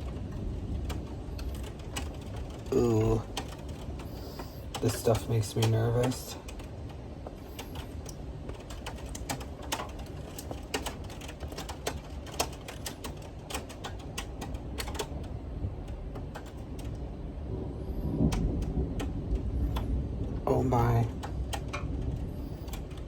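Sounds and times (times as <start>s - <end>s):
thunder rumble: 0.0s - 6.8s, 14.6s - 23.0s
rain striking house: 0.0s - 23.0s.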